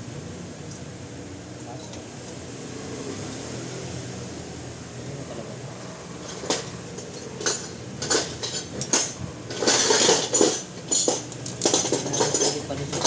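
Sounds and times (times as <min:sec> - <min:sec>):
metallic clinks and knocks: 0:06.2 - 0:13.0.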